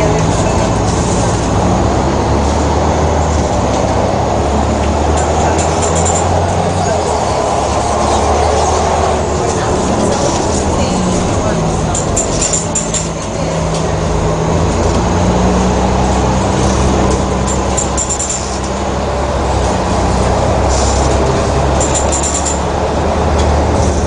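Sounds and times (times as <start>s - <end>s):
diesel engine running: 0.0s - 24.0s
high rattling clicks: 17.4s - 18.8s, 21.8s - 22.7s.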